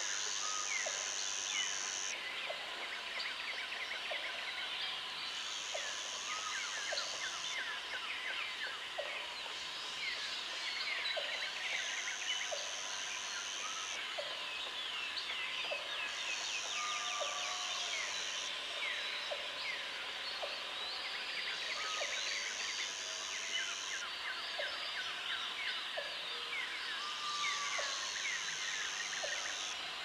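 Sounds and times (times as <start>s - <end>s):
high insect buzz: 0.0s - 2.1s.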